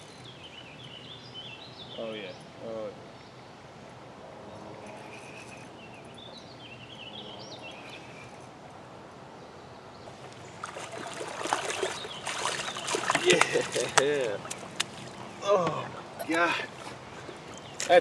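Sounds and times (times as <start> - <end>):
bird chirping: 0.0 - 3.6, 4.5 - 8.5, 9.4 - 16.0, 17.2 - 18.0
river bank ambience: 0.0 - 18.0
water splashing: 10.1 - 18.0.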